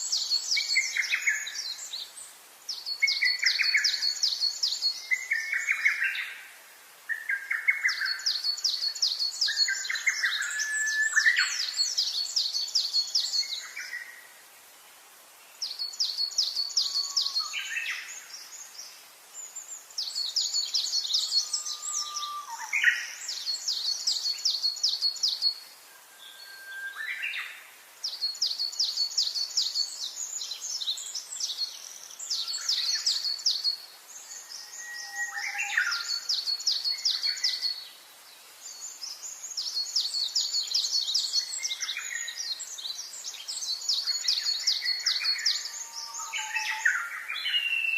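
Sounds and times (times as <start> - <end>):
lower whistled bird notes: 7.1 - 14.2, 15.7 - 18.6, 20.0 - 31.7, 32.3 - 37.8, 39.0 - 47.9.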